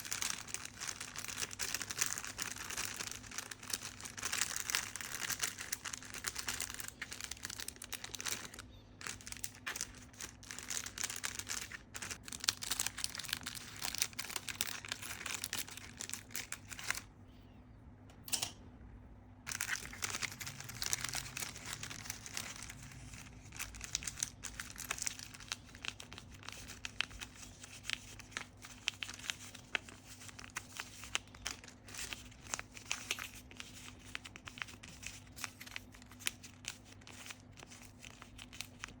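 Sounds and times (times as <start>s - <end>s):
crinkling and rustling: 0.0s - 17.1s, 19.5s - 39.0s.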